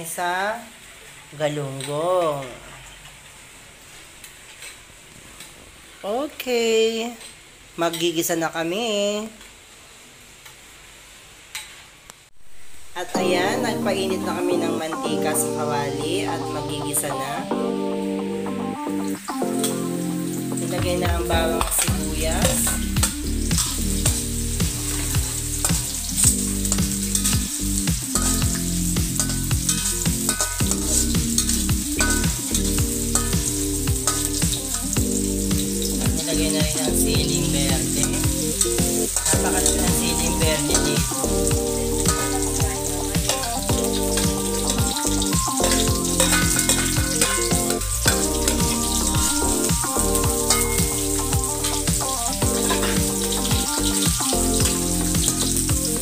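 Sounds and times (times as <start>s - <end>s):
garlic and onion sizzling in oil: 0.0s - 17.8s, 18.4s - 56.0s
metal spatula scraping a pan: 28.2s - 35.4s, 45.6s - 49.6s.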